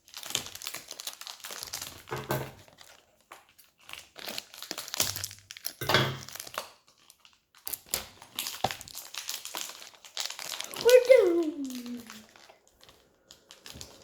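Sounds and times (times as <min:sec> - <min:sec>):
plastic packaging being torn open: 0:00.0 - 0:14.0.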